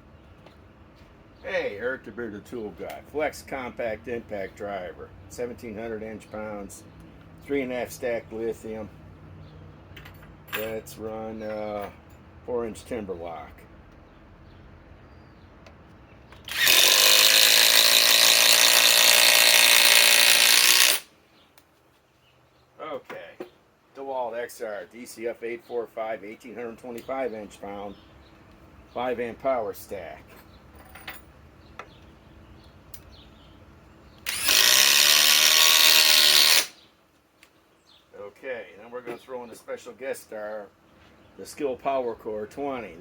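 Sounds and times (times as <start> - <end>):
impact driver hammering screw: 16.4 - 21.1, 34.2 - 36.8.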